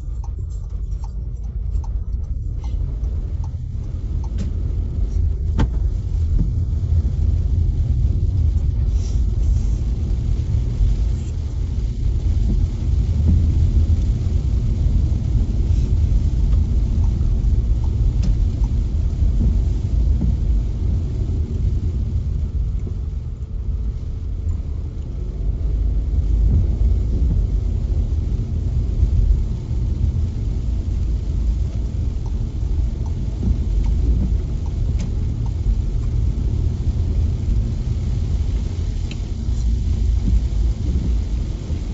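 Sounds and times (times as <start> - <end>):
car road and engine rumble: 0.0 - 41.9.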